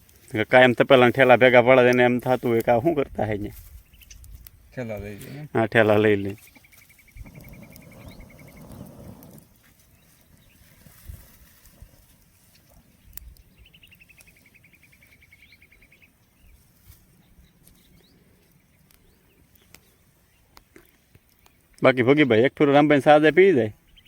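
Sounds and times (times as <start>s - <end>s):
low handling rustle: 5.9s - 13.4s.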